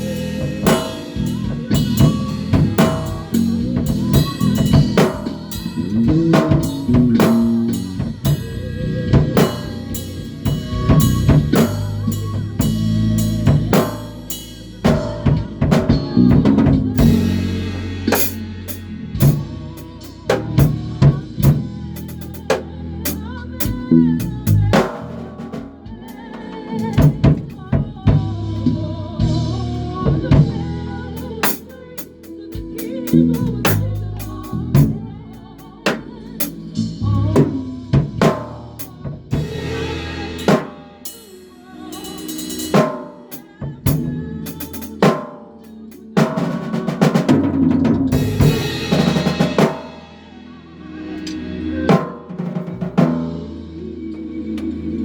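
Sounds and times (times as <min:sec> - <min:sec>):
bass guitar low notes: 0:00.0 - 0:26.0, 0:26.7 - 0:31.4, 0:33.2 - 0:35.3, 0:36.6 - 0:40.5
drum kit hits: 0:00.0 - 0:28.4, 0:35.8 - 0:41.2, 0:46.1 - 0:50.1, 0:51.2 - 0:53.6
band playing live: 0:00.0 - 0:54.0.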